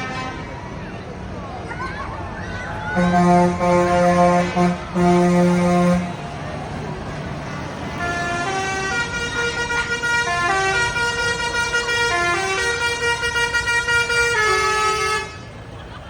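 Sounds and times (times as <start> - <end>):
reedy horn-like melody: 0.0 - 0.6, 2.9 - 6.4, 7.1 - 15.6
low rumble of engines: 0.0 - 16.0.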